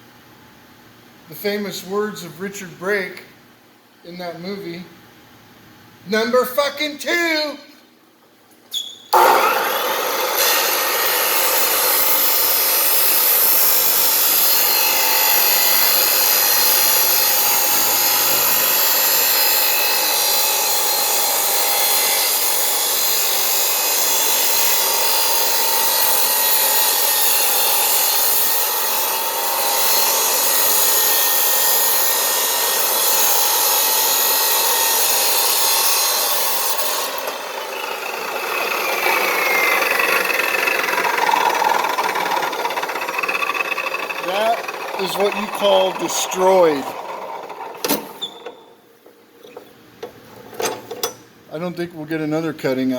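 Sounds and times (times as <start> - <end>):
chop saw grinding through plastic: 9.2 - 48.1.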